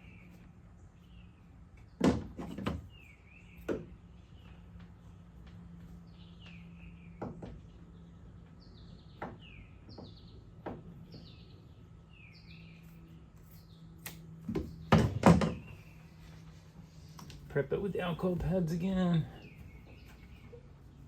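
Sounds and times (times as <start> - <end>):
bird chirping: 0.0 - 2.0, 2.9 - 17.2, 18.0 - 21.0
loud knocks: 14.5 - 15.7.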